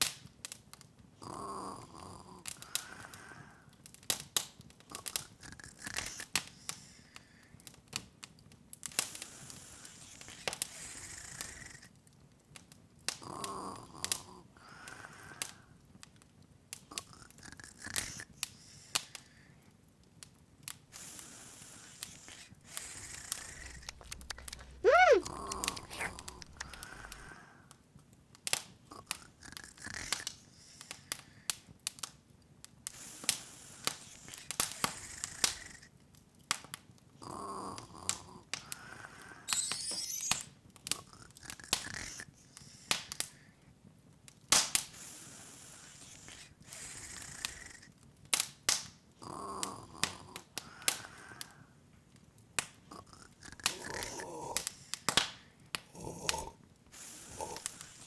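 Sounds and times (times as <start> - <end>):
sparkling shimmer: 39.5 - 40.5.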